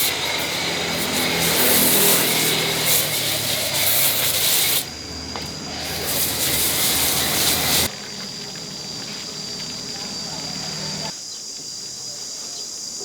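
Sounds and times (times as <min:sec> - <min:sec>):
hissing blast of air: 0:00.0 - 0:07.9
motor humming: 0:00.0 - 0:11.1.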